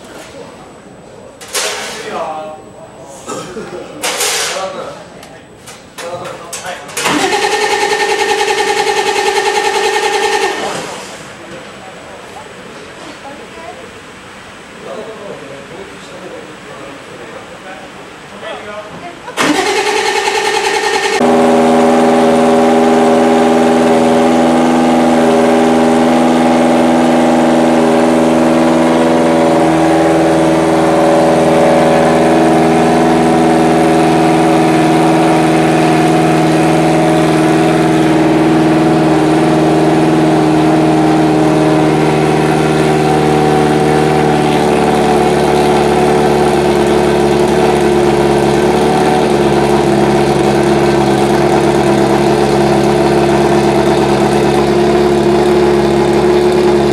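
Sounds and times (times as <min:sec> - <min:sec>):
race car engine idling: 0:19.3 - 0:56.9.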